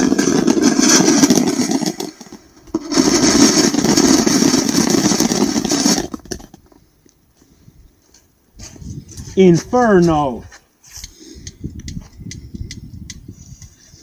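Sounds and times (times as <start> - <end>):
firework fountain hissing: 0.0 - 6.2.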